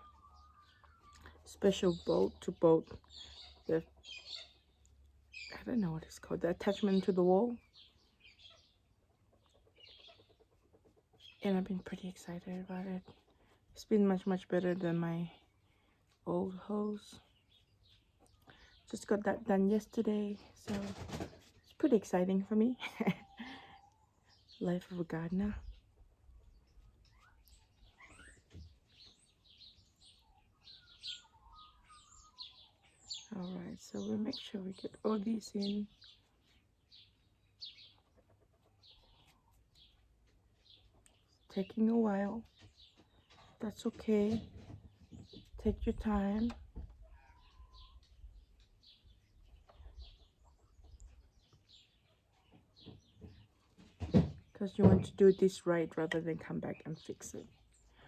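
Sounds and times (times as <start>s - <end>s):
faint bird chirps: 0.0s - 1.4s, 25.6s - 34.9s, 47.0s - 53.4s
faint birds chirping: 0.0s - 58.0s.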